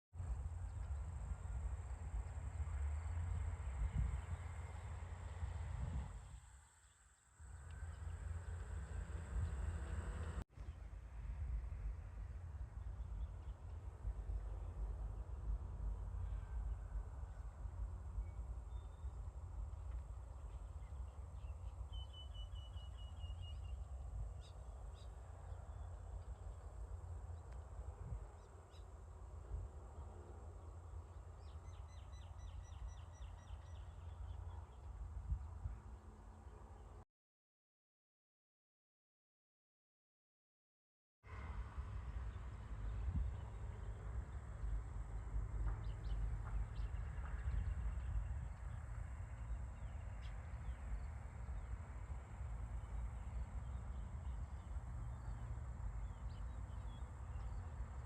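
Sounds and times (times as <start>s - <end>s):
wind rumble on microphone: 0.2s - 6.6s, 7.4s - 37.0s, 41.3s - 58.0s
steady low rumble: 7.4s - 21.9s
bird chirping: 20.5s - 25.9s.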